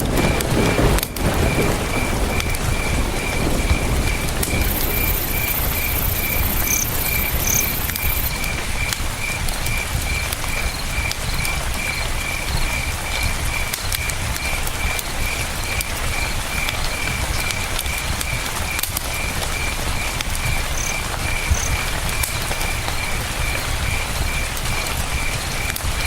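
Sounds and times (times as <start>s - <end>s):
campfire crackling: 0.0s - 26.0s
crickets chirping: 0.2s - 17.6s, 18.7s - 24.5s
river rushing: 4.4s - 8.9s.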